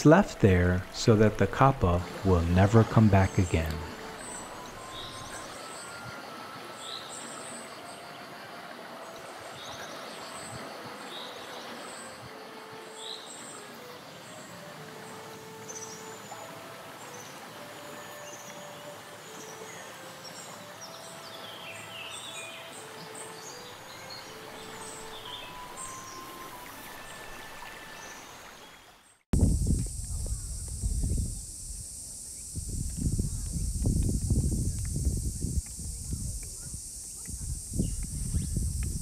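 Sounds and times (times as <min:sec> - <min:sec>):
steady outdoor hiss: 0:00.0 - 0:39.0
small birds chirping: 0:36.5 - 0:39.0.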